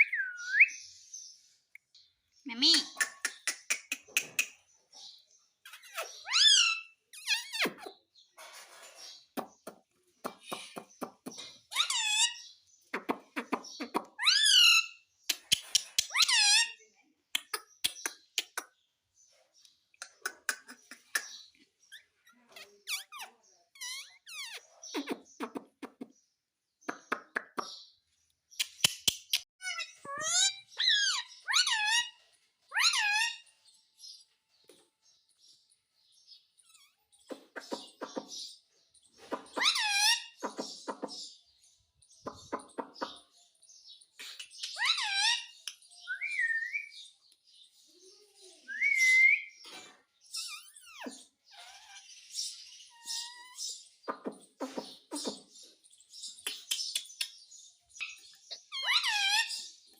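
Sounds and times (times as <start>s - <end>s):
parrot whistling and squawking: 5.8s - 7.7s, 32.7s - 33.4s, 39.5s - 40.4s, 44.6s - 45.5s, 48.7s - 49.6s, 58.0s - 59.7s
parrot raspy chirps: 11.7s - 12.4s, 39.2s - 41.2s, 58.0s - 59.8s.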